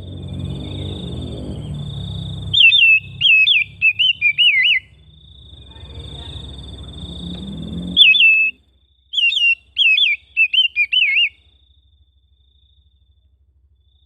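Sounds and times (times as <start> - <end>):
bird singing wavy whistles: 0.2 - 5.0, 6.2 - 11.5.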